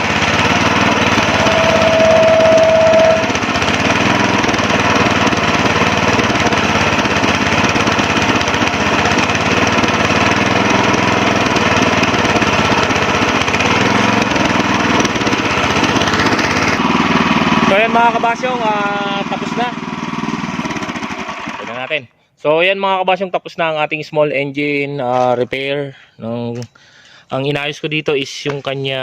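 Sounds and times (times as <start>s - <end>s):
small gasoline engine running: 0.0s - 21.9s
steady tone: 0.7s - 4.5s.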